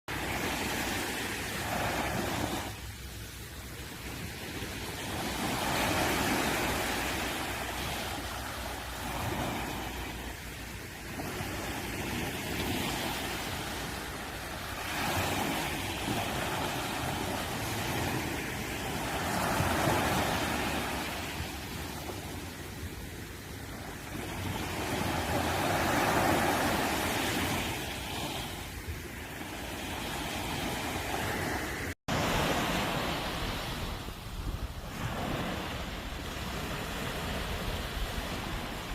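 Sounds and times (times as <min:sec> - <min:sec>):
sea waves breaking on beach: 0:00.1 - 0:38.9.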